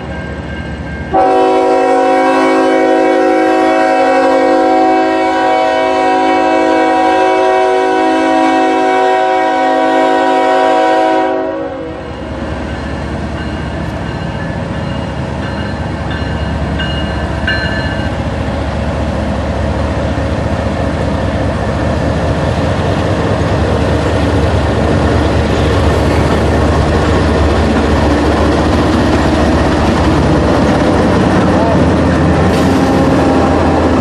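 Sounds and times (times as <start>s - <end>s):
train wheels on rails: 8.6s - 34.0s.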